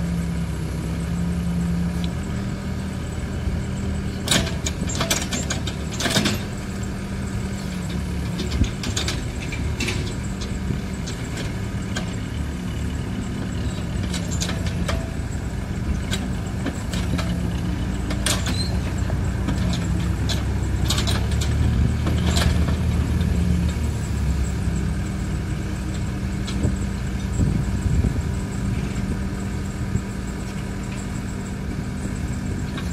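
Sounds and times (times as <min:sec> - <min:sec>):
diesel engine running under load: 0:00.0 - 0:32.9.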